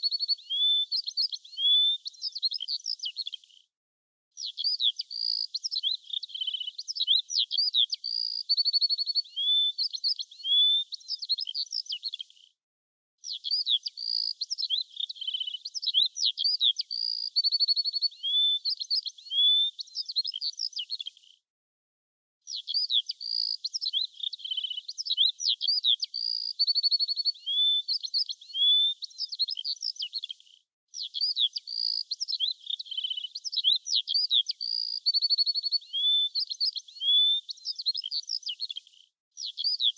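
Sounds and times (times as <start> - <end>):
birds chirping and trilling: 22.5 - 30.3, 31.0 - 38.8.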